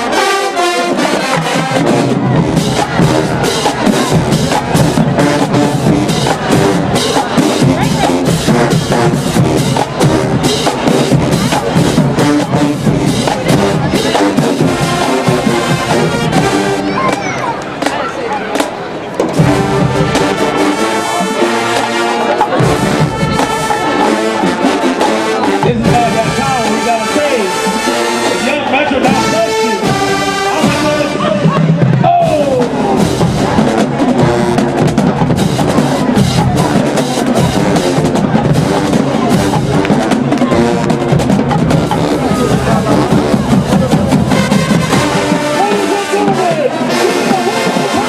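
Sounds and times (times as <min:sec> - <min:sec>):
brass section playing chords: 0:00.0 - 0:17.2, 0:19.3 - 0:48.0
bass and snare drums beating: 0:00.0 - 0:48.0
marching band horns: 0:00.0 - 0:48.0.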